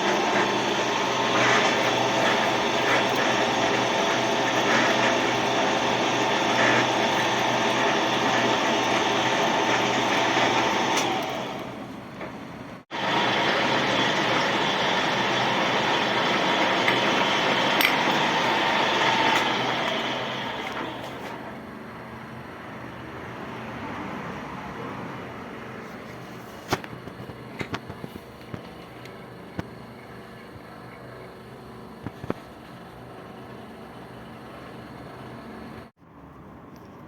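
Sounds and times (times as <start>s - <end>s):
metal lathe cutting metal: 0.0s - 12.0s, 12.9s - 21.6s.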